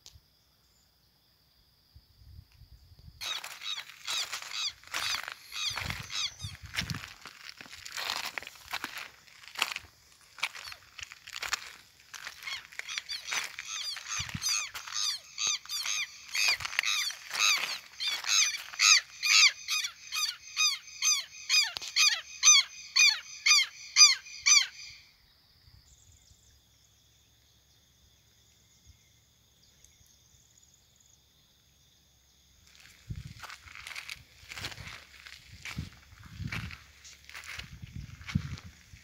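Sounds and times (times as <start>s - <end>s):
bird calling repeated notes: 3.2s - 25.1s.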